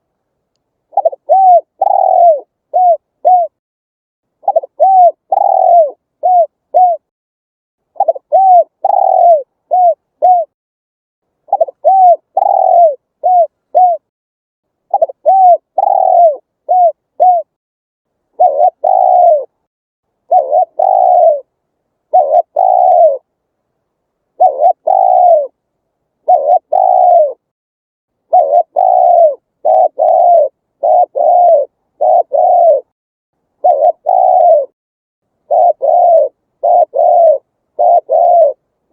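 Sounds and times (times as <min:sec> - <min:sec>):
dove cooing: 0:00.9 - 0:03.6, 0:04.4 - 0:07.1, 0:08.0 - 0:10.6, 0:11.5 - 0:14.1, 0:14.9 - 0:17.5, 0:18.4 - 0:19.6, 0:20.2 - 0:21.5, 0:22.1 - 0:23.3, 0:24.4 - 0:25.6, 0:26.2 - 0:27.4, 0:28.3 - 0:32.9, 0:33.6 - 0:34.8, 0:35.4 - 0:38.6.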